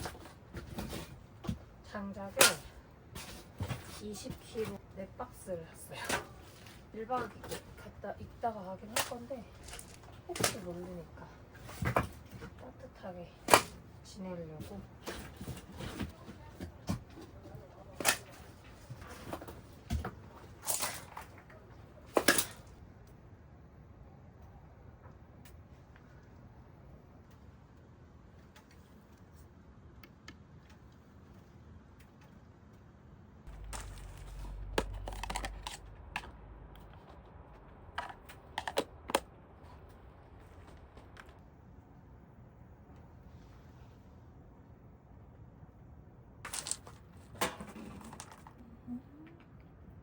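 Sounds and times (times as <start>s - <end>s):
hard objects clicking and knocking: 33.5s - 41.4s
low rumble: 33.5s - 41.4s.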